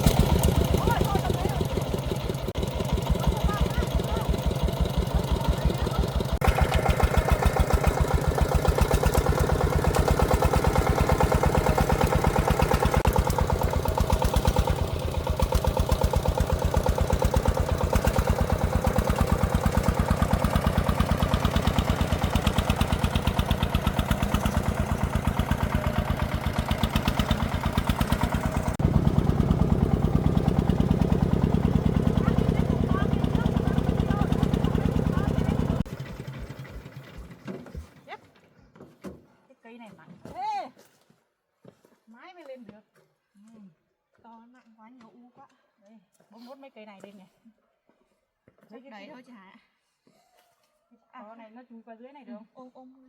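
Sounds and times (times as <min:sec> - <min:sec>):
single-cylinder diesel engine running: 0:00.0 - 0:38.4.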